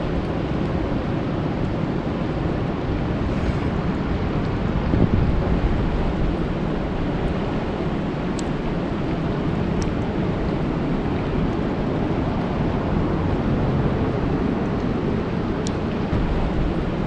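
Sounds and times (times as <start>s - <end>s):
low rumble: 0.0s - 17.0s
rain falling on a lake: 4.3s - 17.0s.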